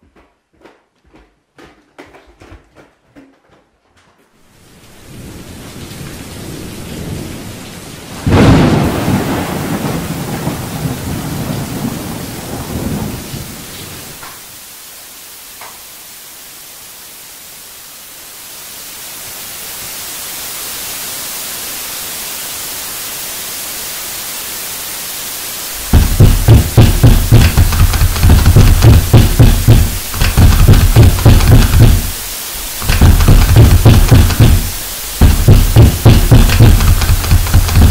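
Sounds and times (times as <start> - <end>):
rain hiss: 4.4 - 37.9
thunder rumble: 4.9 - 14.1, 25.8 - 37.9
loud thunderclap: 8.2 - 13.6, 25.8 - 37.9.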